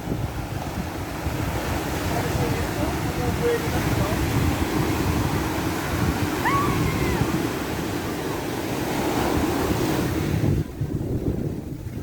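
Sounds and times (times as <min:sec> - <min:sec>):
ocean surf washing: 0:00.0 - 0:12.0
wind buffeting microphone: 0:00.0 - 0:12.0.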